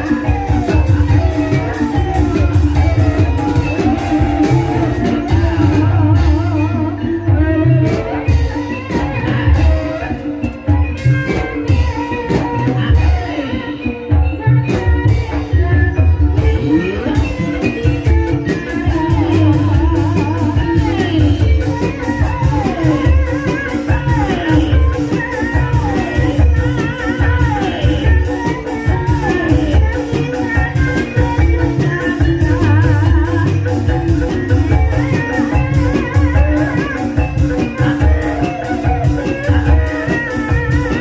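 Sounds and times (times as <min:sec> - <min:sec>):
drums beating: 0:00.0 - 0:41.0
person singing with vibrato: 0:00.0 - 0:41.0.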